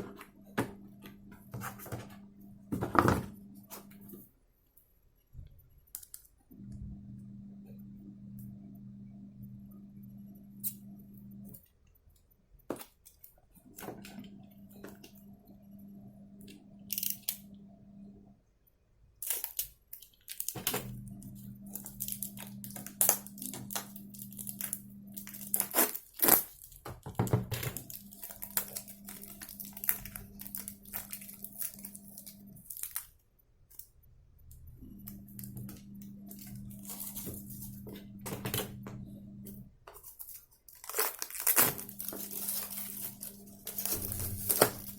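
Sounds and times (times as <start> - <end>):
low steady hum: 0.0 - 19.6, 20.2 - 44.9
packaging tearing and crinkling: 19.2 - 20.8, 21.7 - 26.9, 27.6 - 33.1, 40.0 - 44.9.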